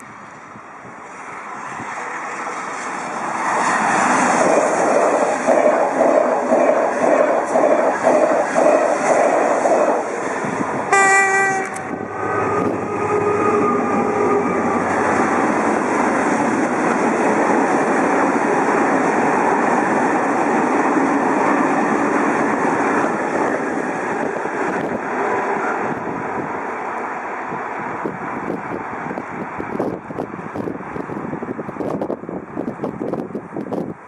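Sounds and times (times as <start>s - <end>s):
freight train rolling past: 0.0s - 34.0s
high-speed train passing: 0.0s - 34.0s
train horn: 10.9s - 14.6s.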